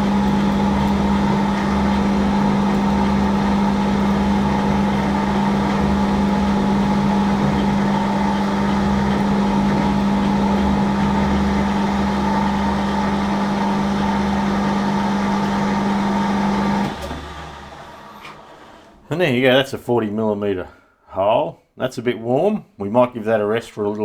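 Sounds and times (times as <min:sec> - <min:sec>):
metal lathe motor and gear hum: 0:00.0 - 0:19.0.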